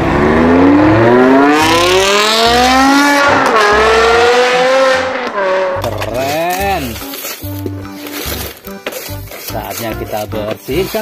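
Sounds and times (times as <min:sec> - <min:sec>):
car engine accelerating hard: 0:00.0 - 0:06.1.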